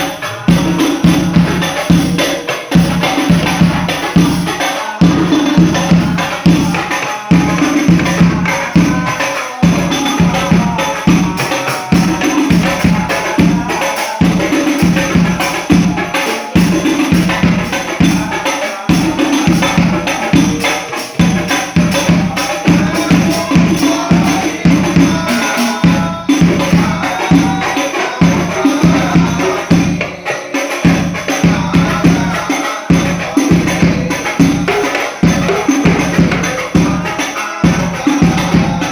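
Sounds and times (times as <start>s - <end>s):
frame drums with jingles: 0.0s - 38.9s.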